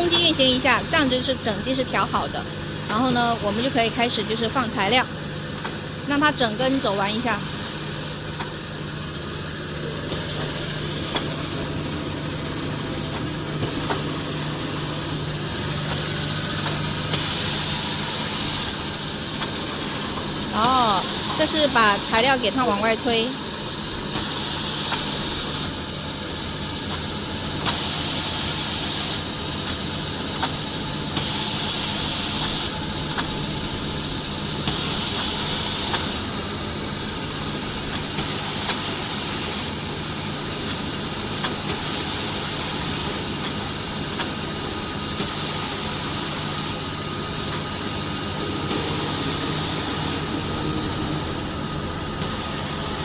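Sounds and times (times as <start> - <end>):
band saw machine humming: 47.7 - 53.0.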